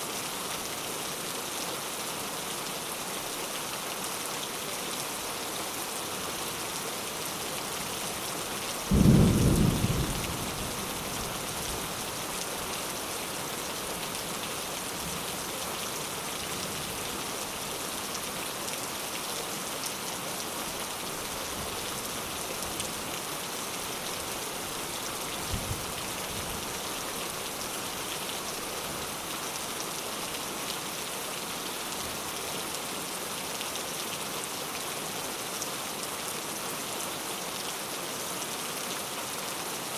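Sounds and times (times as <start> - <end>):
rain on a thatched roof: 0.0 - 39.9
thunder rumbling: 8.9 - 11.1.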